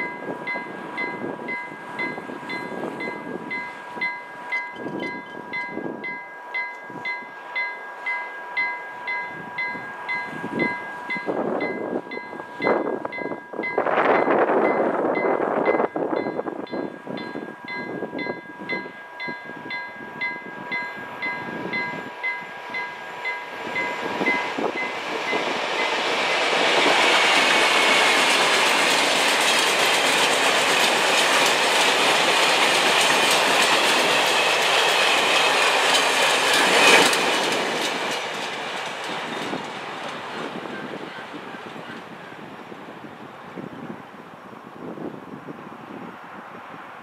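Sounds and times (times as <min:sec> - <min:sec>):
crossing warning bell ringing: 0:00.0 - 0:42.0
train wheels clicking over rails: 0:20.8 - 0:42.2.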